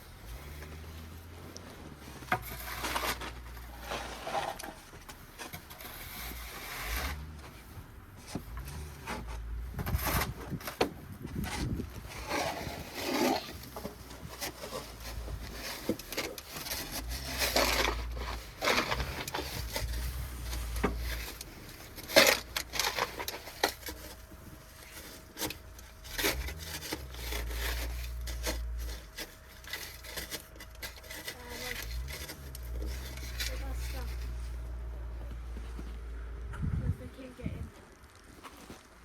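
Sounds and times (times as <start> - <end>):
snow shovel scraping snow: 0.2 - 10.6, 11.4 - 34.7
low rumble: 31.7 - 37.8.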